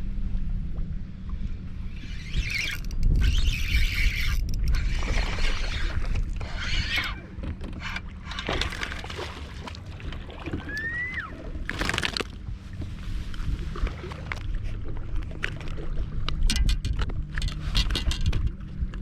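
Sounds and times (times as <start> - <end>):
steady low hum: 0.0 - 19.0
water noise: 0.0 - 19.0
wind: 0.0 - 19.0.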